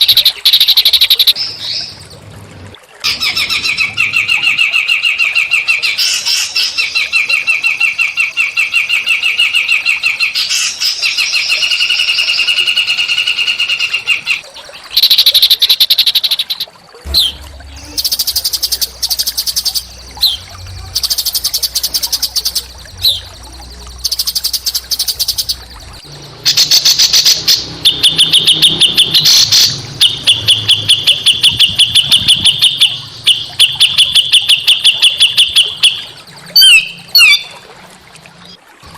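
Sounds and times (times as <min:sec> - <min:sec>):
songbirds giving buzzy trills: 0:00.0 - 0:38.6
low hum: 0:17.0 - 0:33.9.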